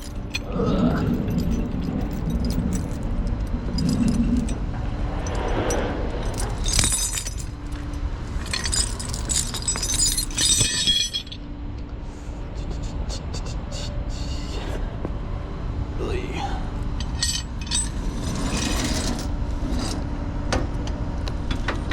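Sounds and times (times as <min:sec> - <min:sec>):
metallic jingling and clinking: 0:00.0 - 0:11.4, 0:17.0 - 0:20.0.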